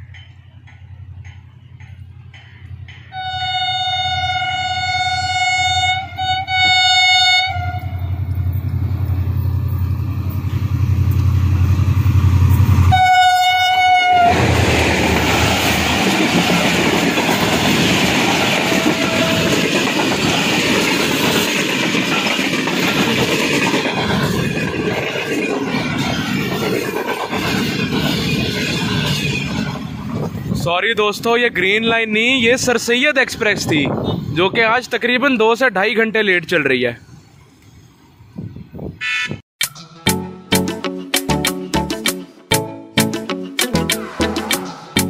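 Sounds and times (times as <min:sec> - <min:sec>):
train wheels on rails: 0:00.0 - 0:31.6
diesel locomotive engine rumbling: 0:00.0 - 0:35.2, 0:42.6 - 0:45.0
train horn blasts: 0:03.1 - 0:08.3, 0:12.8 - 0:14.6, 0:18.6 - 0:19.6.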